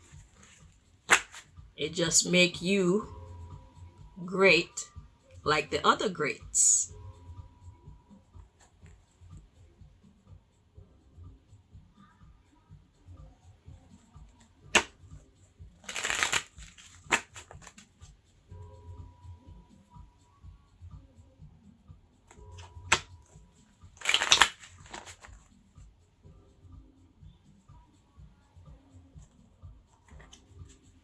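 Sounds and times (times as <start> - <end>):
cards being shuffled: 0.0 - 1.5, 14.7 - 15.0, 15.8 - 17.9, 22.3 - 23.1, 24.0 - 25.5, 30.0 - 30.8.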